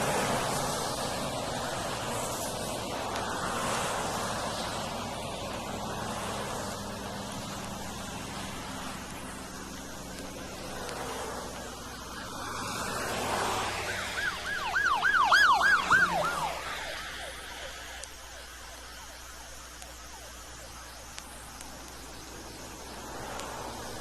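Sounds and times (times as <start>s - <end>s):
car rushing past: 0.0s - 9.0s, 12.2s - 17.7s
police siren yelping: 8.5s - 21.9s.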